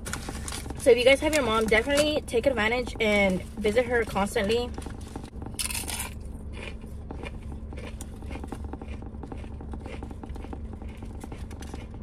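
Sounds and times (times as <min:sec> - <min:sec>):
steady low hum: 0:00.0 - 0:12.0
chewing sandwich: 0:04.8 - 0:12.0.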